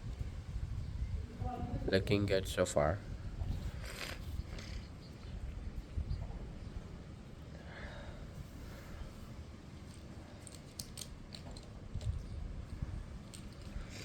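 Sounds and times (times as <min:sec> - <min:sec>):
steady low rumble: 0:00.0 - 0:14.0
plastic bricks clicking together: 0:10.4 - 0:12.2.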